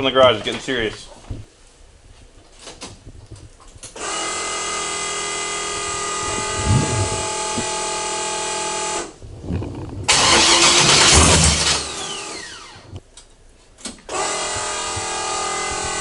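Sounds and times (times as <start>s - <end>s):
steady whine: 4.3s - 13.1s
car engine starting: 9.5s - 13.0s.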